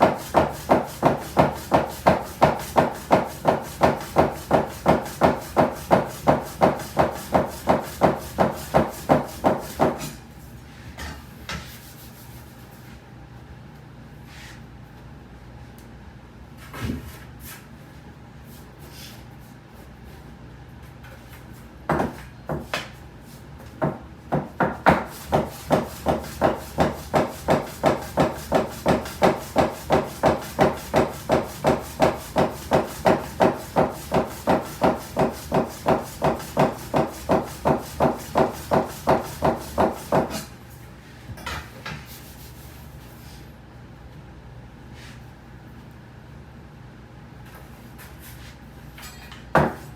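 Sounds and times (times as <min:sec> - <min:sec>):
knife chopping on wooden board: 0:00.0 - 0:10.2, 0:21.9 - 0:22.9, 0:23.8 - 0:40.5, 0:49.6 - 0:49.9.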